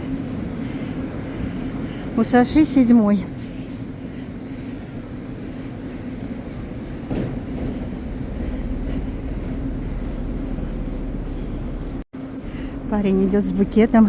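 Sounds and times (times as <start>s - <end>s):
train rolling past: 0.0s - 14.0s
train clack: 4.8s - 12.0s.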